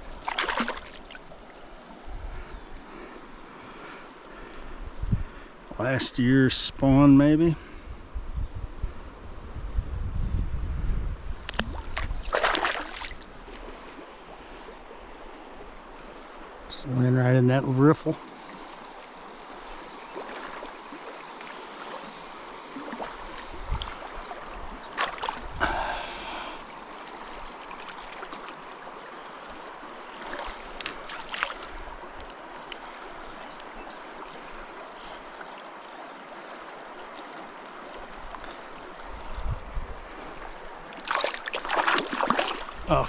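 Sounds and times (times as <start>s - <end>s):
stream water rushing: 0.0s - 7.4s, 11.4s - 43.0s.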